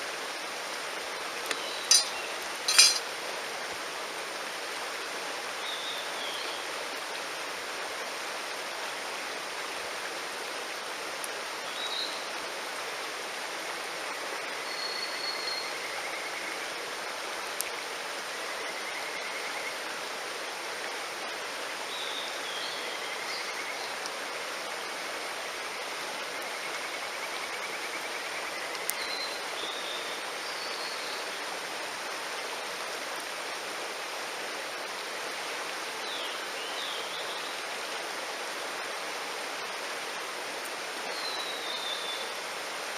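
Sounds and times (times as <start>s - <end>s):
stream rushing: 0.0s - 14.6s, 28.8s - 42.9s.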